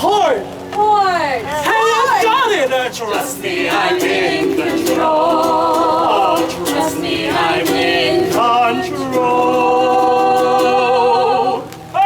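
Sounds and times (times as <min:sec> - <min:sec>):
person singing unaccompanied: 0:01.7 - 0:11.9.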